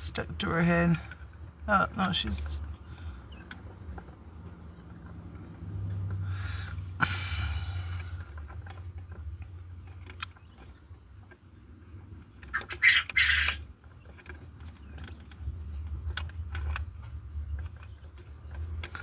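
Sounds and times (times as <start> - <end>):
quail calling: 12.4 - 13.7.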